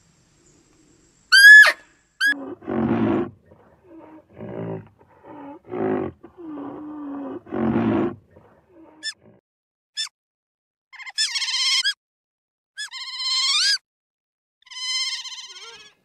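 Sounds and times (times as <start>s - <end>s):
high squealing animal call: 1.3s - 9.3s, 14.7s - 16.0s
animal grunting and roaring: 2.3s - 9.4s.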